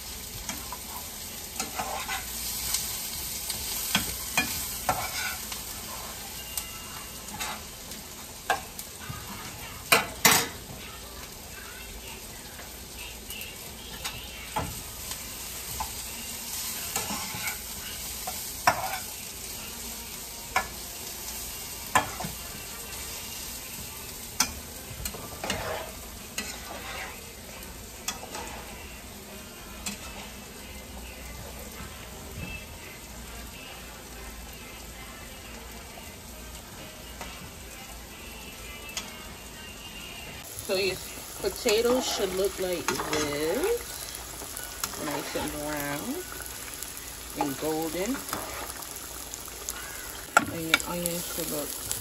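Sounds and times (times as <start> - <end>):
potatoes and onions frying in oil: 0.0 - 52.0
metal fork scraping a pan: 1.6 - 2.3, 3.9 - 5.5, 18.6 - 19.1, 25.3 - 27.2.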